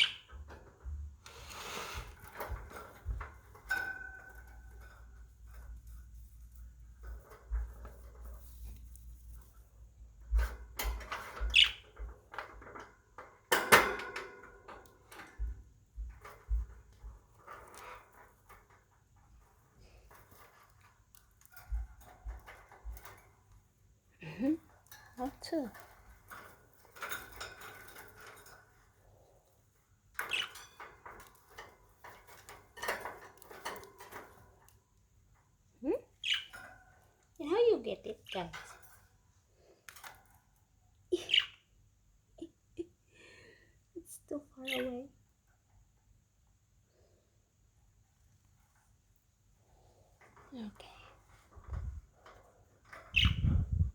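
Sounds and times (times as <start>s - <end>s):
budgerigars clicking and tapping: 0.0s - 0.7s, 10.4s - 12.3s, 30.2s - 31.2s, 36.2s - 36.8s, 41.2s - 41.7s, 53.0s - 53.5s.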